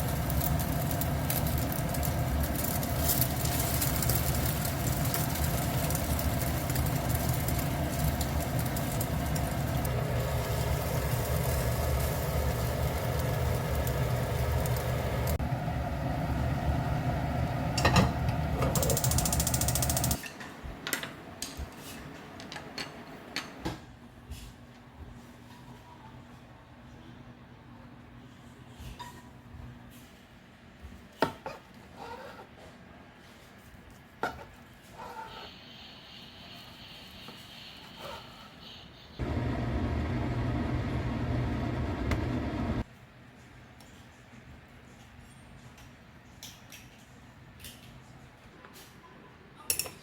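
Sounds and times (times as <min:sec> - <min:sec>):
appliance motor humming: 0:39.2 - 0:42.8.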